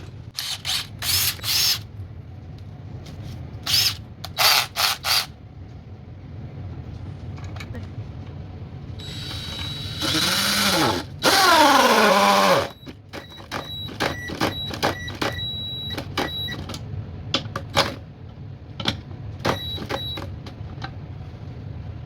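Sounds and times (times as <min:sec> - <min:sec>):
cordless drill bursts: 0:00.4 - 0:01.8, 0:03.7 - 0:05.3, 0:09.0 - 0:12.8.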